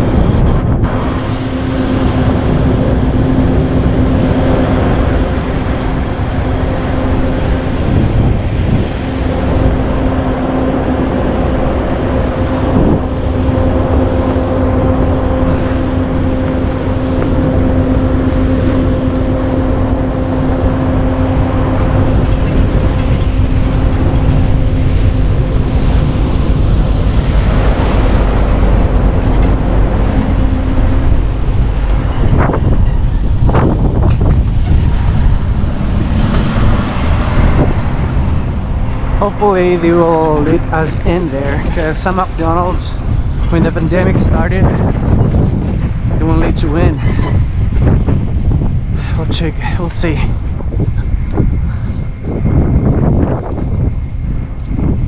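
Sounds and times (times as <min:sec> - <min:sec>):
steady engine hum: 0:00.0 - 0:55.0
vehicle engines running: 0:00.0 - 0:55.0
wind rumble on microphone: 0:00.0 - 0:55.0.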